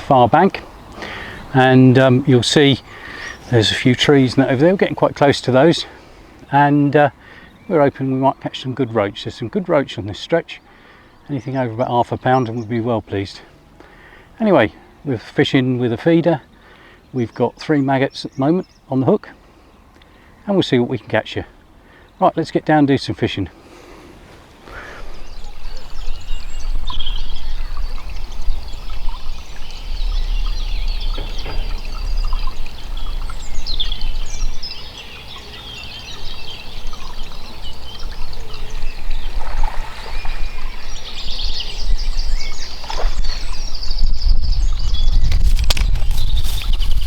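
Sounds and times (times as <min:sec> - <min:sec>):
small birds chirping: 0:00.0 - 0:47.0
low rumble: 0:26.4 - 0:34.9.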